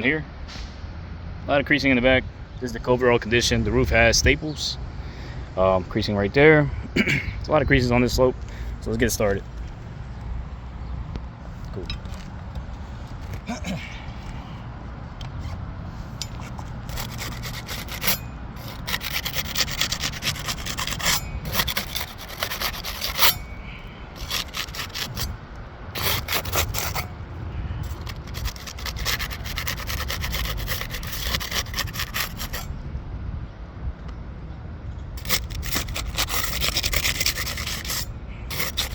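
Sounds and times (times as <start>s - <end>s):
metal tool scraping shingles: 15.4s - 25.4s, 26.0s - 27.2s, 27.8s - 32.7s, 35.2s - 38.9s.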